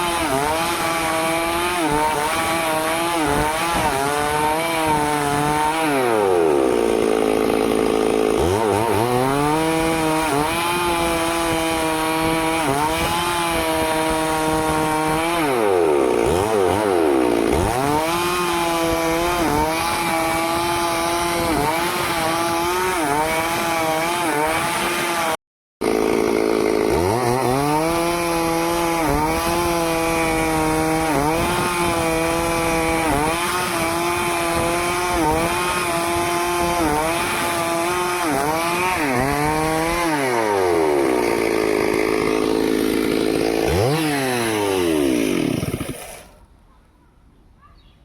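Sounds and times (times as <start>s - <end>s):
chainsaw cutting wood: 0.0s - 46.5s.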